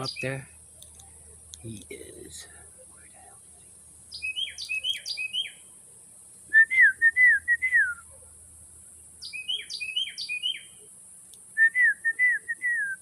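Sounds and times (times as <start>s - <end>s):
wren singing: 0.0s - 5.8s, 8.8s - 11.0s.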